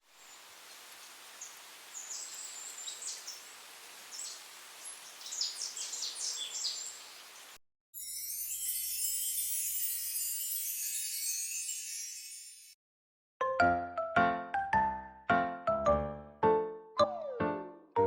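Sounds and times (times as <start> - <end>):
outdoor background hiss: 0.0 - 11.8
birds chirping: 0.2 - 7.6.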